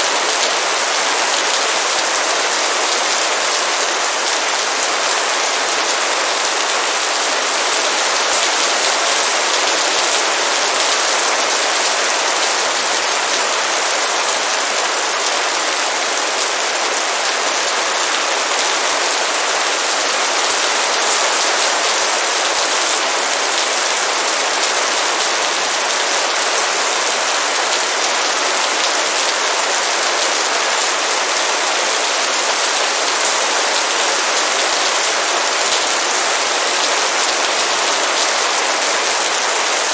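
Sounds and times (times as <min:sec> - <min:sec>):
heavy rain downpour: 0:00.0 - 0:39.9.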